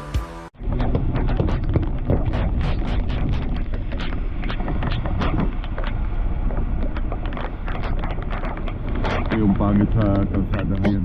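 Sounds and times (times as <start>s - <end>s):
truck engine and road rumble: 0.0s - 11.0s
wind noise: 0.6s - 11.0s
irregular ticks and taps: 3.6s - 11.0s.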